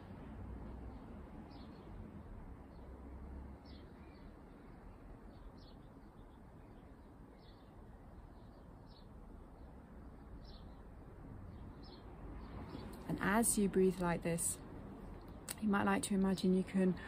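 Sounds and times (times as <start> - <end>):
low outdoor rumble: 9.2 - 17.0.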